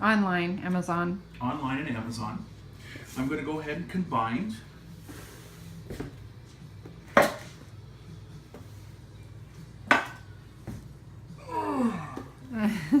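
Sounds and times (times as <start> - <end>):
kitchenware clinking: 9.9 - 10.3.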